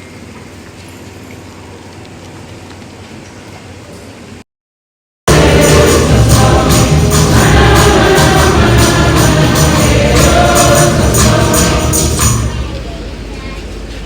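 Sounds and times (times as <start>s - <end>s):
choir singing gospel music: 5.3s - 12.8s
tambourine beat: 5.3s - 12.8s.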